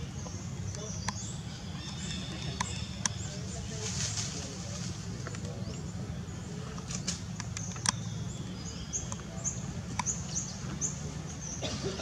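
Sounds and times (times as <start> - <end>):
small bird chirping: 5.5 - 11.6
sharp clicks: 6.7 - 8.2, 9.9 - 10.2.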